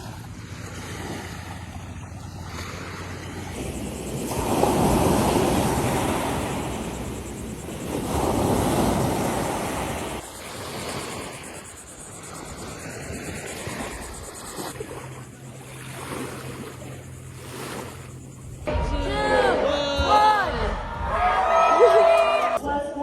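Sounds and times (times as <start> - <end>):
wind buffeting microphone: 0.0 - 17.4
ocean waves breaking: 0.0 - 21.0.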